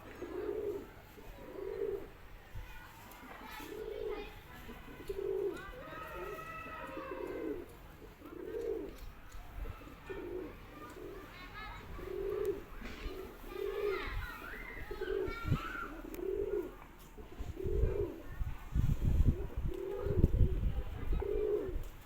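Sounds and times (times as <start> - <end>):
pigeon cooing: 0.0 - 2.3, 3.5 - 22.0.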